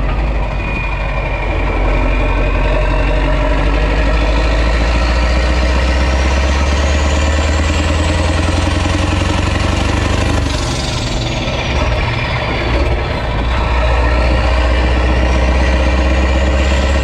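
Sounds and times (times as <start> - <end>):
diesel truck engine running loud: 0.0 - 17.0.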